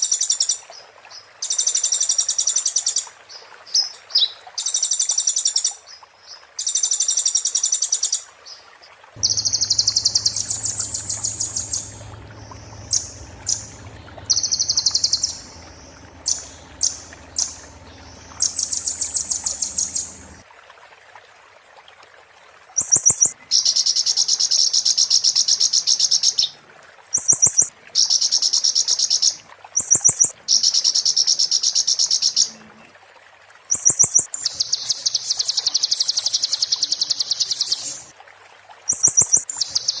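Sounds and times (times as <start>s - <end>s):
bird singing fast high trills: 9.2s - 20.4s.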